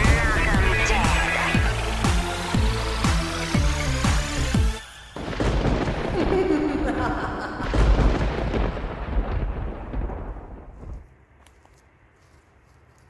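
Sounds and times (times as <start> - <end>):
song: 0.0 - 4.8
thunder rolling: 5.2 - 11.0.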